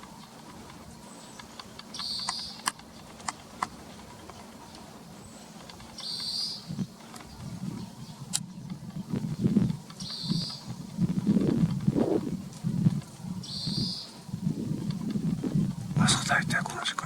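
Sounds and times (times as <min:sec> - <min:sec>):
bird buzzy call: 0:13.4 - 0:14.2.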